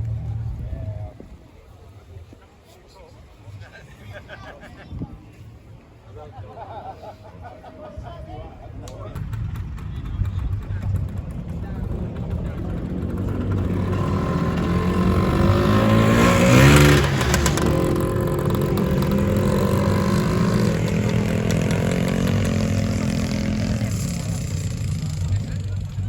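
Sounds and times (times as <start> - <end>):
scooter engines running: 0.0 - 1.8, 6.8 - 26.0
scooter engine revving: 9.1 - 26.0.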